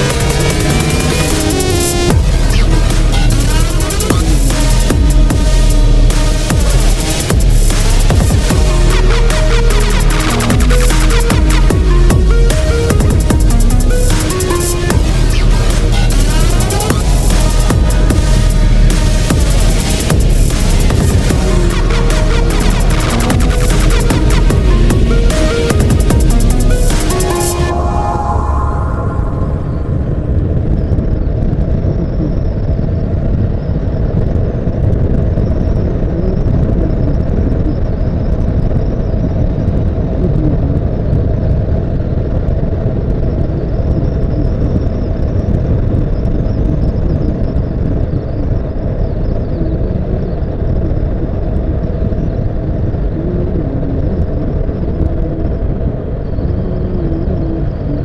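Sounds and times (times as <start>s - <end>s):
wind noise: 27.6s - 58.0s.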